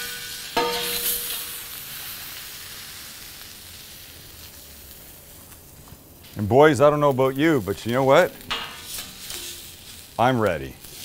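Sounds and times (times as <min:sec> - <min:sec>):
metal spatula clanking on griddle: 0:00.0 - 0:01.8, 0:08.4 - 0:09.8
taco sizzling in oil: 0:00.0 - 0:11.0.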